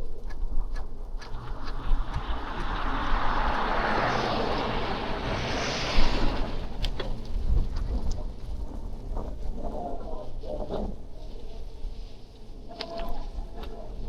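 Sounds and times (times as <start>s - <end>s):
wind rumble on microphone: 0.0s - 14.0s
vehicle tyre hiss passing: 1.2s - 7.7s.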